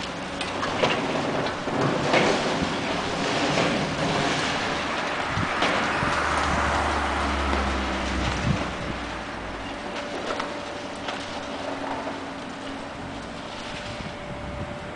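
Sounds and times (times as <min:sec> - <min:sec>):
concrete debris crashing: 0:00.0 - 0:09.0
excavator diesel engine droning: 0:00.0 - 0:14.9.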